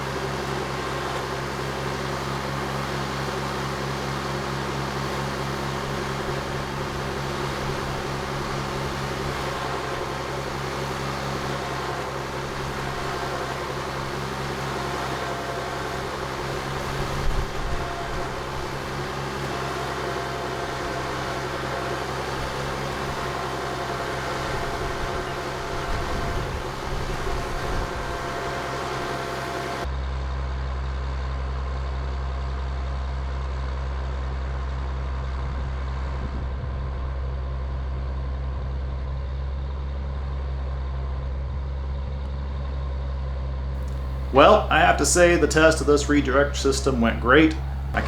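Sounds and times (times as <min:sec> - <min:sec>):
truck engine idling: 0:00.0 - 0:29.9, 0:43.8 - 0:48.0.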